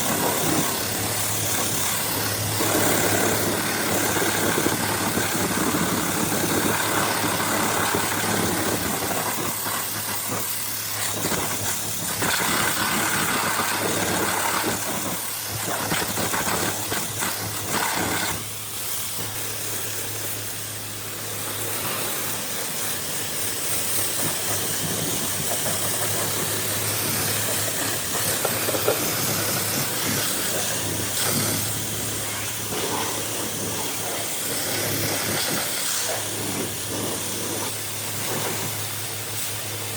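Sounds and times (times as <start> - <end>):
washer motor humming: 0.0 - 18.7
pressure washer spraying: 0.0 - 39.9.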